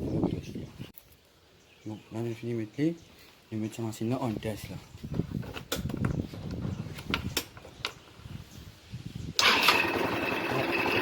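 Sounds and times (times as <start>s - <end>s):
scooter engine starting and running: 9.4s - 11.0s.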